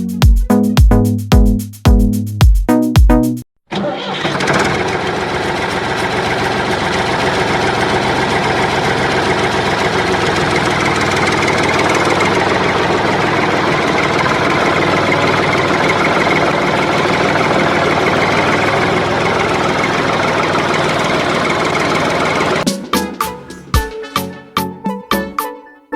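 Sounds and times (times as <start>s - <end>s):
toy tractor motor running: 3.7s - 22.6s.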